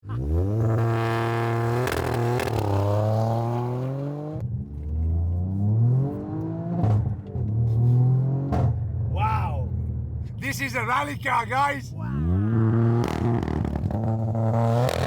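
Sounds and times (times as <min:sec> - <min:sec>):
car engine revving: 0:00.2 - 0:04.4, 0:12.1 - 0:15.0.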